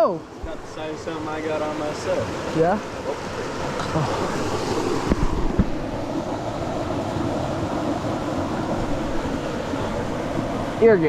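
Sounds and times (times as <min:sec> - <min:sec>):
creek water rushing: 0:00.0 - 0:11.0
wind buffeting microphone: 0:00.3 - 0:11.0
low thumps: 0:03.7 - 0:06.2.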